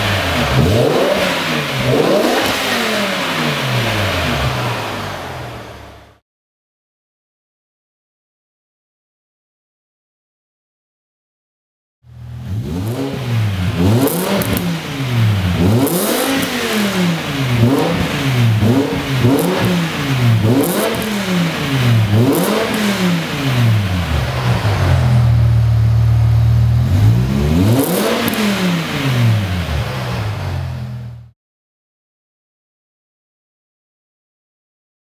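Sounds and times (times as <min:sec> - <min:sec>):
car engine revving: 0:00.0 - 0:06.2, 0:12.1 - 0:31.3.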